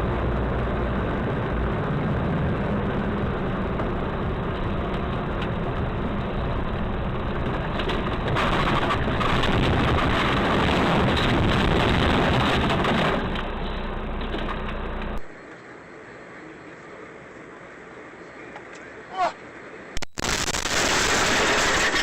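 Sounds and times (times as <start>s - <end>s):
vehicle engine: 0.0s - 15.6s
road noise: 0.0s - 20.0s.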